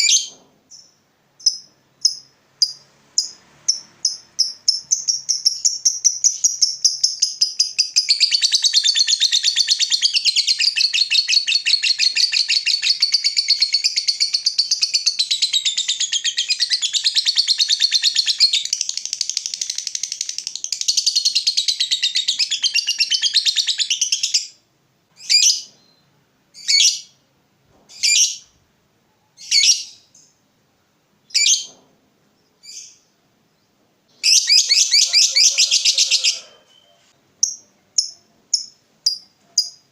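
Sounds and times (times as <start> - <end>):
bird chattering trill: 34.2 - 39.9.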